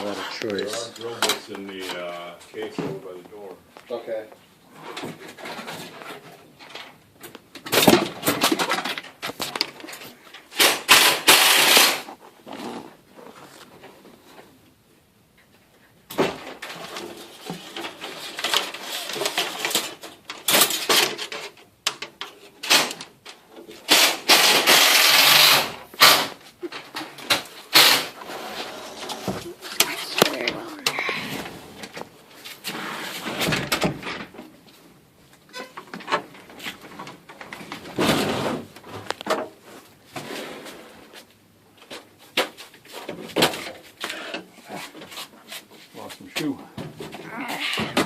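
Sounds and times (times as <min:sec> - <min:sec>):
tools and metal parts clattering: 0:04.8 - 0:12.1, 0:16.2 - 0:30.6.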